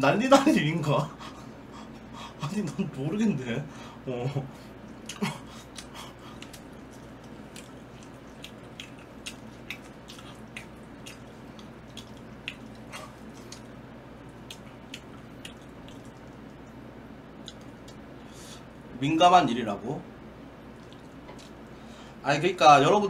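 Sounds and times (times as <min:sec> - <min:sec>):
steady low hum: 0:00.0 - 0:23.0
person chewing with wet smacks: 0:04.7 - 0:18.2, 0:20.7 - 0:21.8.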